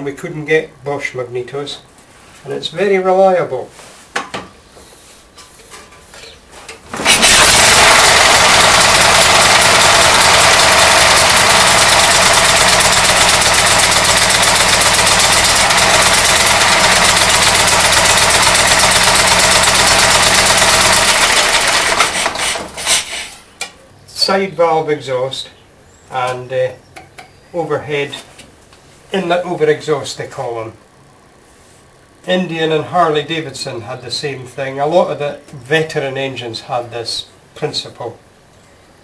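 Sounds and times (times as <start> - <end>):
motorcycle engine running: 7.0 - 22.6.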